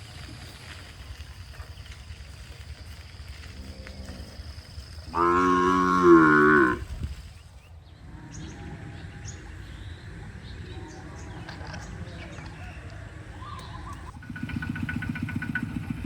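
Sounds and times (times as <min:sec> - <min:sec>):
cow mooing: 0:05.1 - 0:06.9.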